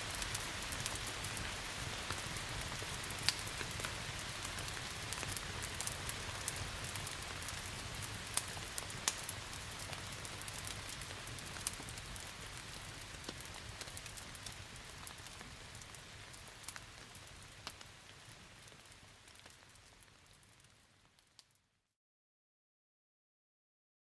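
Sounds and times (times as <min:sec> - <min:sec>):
rain hiss: 0:00.0 - 0:21.0
wood fire crackling: 0:00.0 - 0:21.6.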